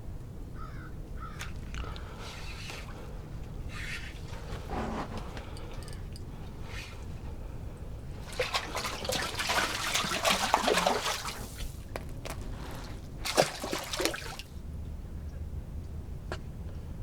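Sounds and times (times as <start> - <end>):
water splashing and trickling: 1.3 - 14.6.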